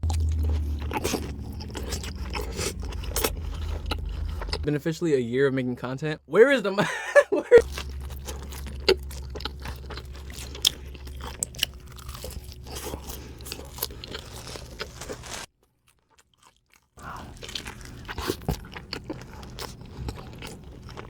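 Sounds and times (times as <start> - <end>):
crunchy eating and chewing: 0.0 - 4.7, 7.6 - 21.0.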